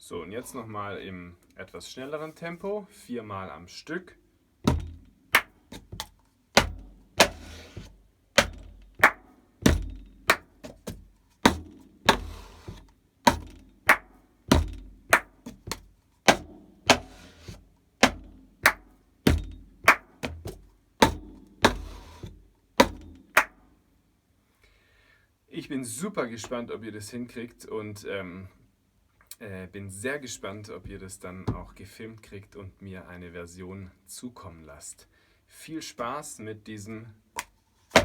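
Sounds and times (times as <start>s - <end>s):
cup sliding across table: 7.3s - 7.9s, 12.2s - 12.8s, 21.8s - 22.3s
hand claps: 8.4s - 9.2s, 10.3s - 10.5s, 13.9s - 14.1s, 15.1s - 16.4s, 18.0s - 18.8s, 19.9s - 20.4s, 23.4s - 23.6s
cup struck against palm: 8.4s - 10.5s.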